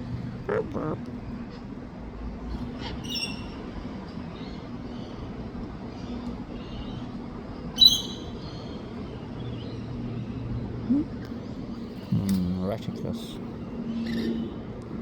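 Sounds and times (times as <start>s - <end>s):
steady low hum: 0.0s - 15.0s
loud bird call: 7.8s - 8.7s.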